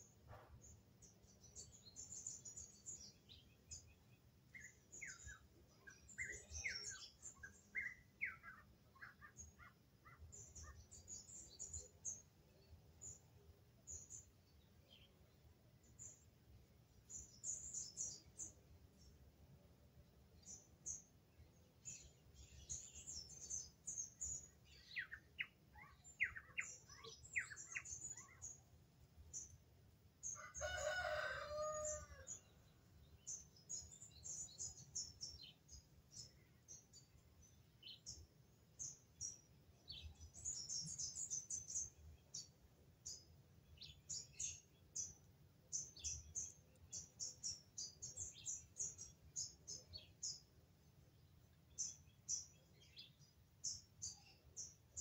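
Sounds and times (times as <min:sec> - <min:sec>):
birds chirping: 0:20.4 - 0:28.7, 0:30.2 - 0:50.6.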